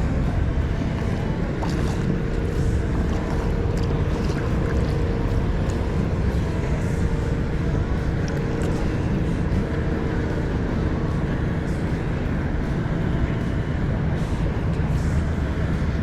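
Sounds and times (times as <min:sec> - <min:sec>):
light water splashes: 0:00.0 - 0:12.0
motorboat engine hum: 0:00.0 - 0:16.0
wind on microphone: 0:00.0 - 0:16.0.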